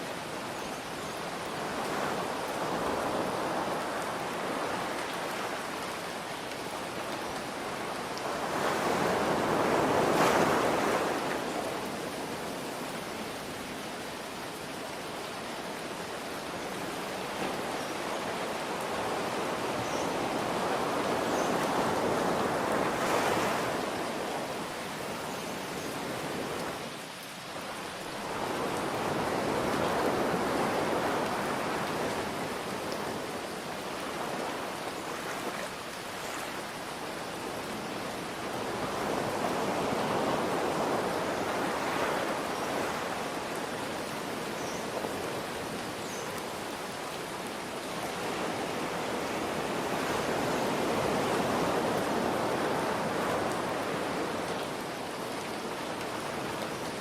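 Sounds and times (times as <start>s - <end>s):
falling rain hiss: 0.0s - 57.0s
ocean waves breaking: 8.2s - 12.6s.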